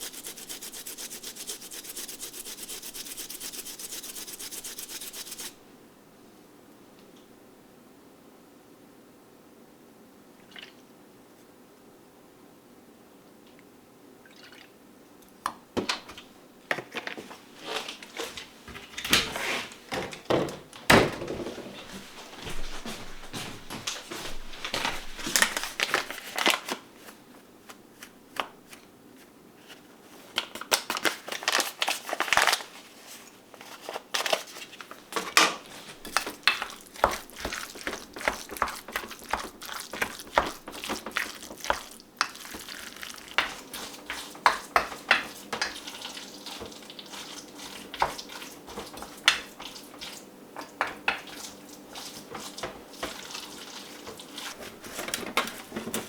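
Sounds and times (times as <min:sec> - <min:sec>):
food handling knocks and clicks: 0:35.2 - 0:45.8, 0:54.1 - 0:56.0.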